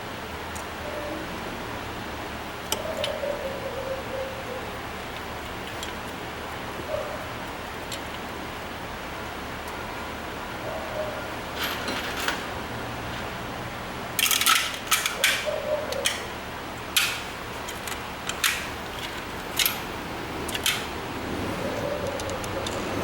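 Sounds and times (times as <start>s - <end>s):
metal tools clicking and clinking: 14.2s - 16.3s, 16.9s - 19.9s, 20.5s - 20.9s.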